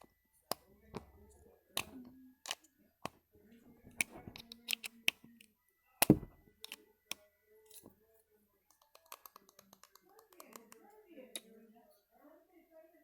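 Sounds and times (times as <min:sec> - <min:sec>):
loud thump on hard surface: 0:06.1 - 0:06.4.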